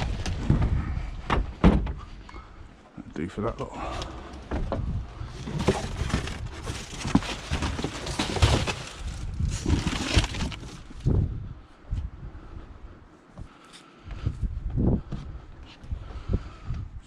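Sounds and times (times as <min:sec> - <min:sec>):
rustling: 0:05.2 - 0:11.1.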